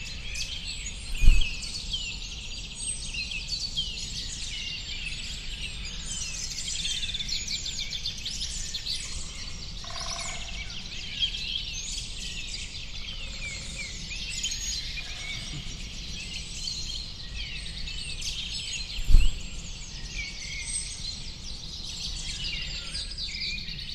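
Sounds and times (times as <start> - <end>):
birds chirping and twittering: 0.0 - 23.9
low rumble: 1.0 - 1.8.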